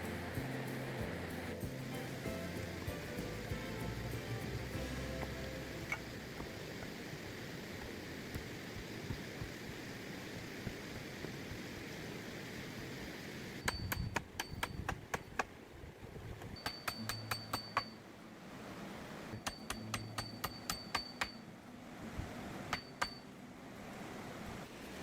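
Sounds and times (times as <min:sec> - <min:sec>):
steady background hiss: 0:00.0 - 0:25.0
hammer striking metal: 0:16.6 - 0:17.9, 0:19.4 - 0:21.4.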